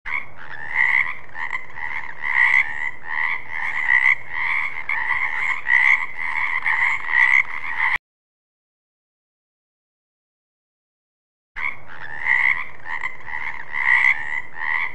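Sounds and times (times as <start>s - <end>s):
frogs croaking: 0.1s - 8.0s, 11.6s - 14.9s.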